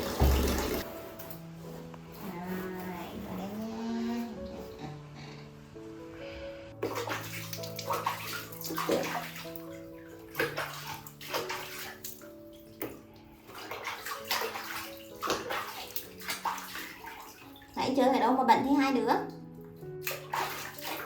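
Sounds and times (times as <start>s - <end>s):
water splashing in a tub: 0.0s - 0.9s, 6.8s - 21.0s
gentle background music: 0.0s - 21.0s.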